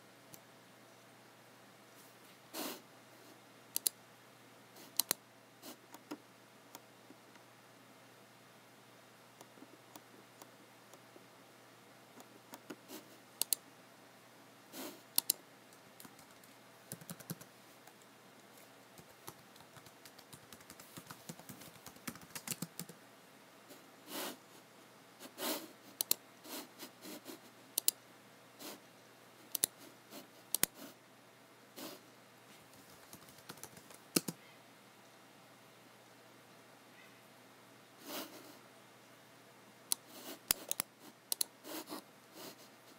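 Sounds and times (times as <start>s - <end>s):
computer keyboard typing: 3.8s - 4.0s, 4.9s - 5.2s, 13.4s - 13.6s, 15.1s - 15.4s, 16.0s - 18.0s, 19.0s - 23.0s, 26.0s - 26.2s, 27.8s - 28.0s, 29.5s - 29.8s, 32.8s - 34.4s, 39.9s - 41.5s.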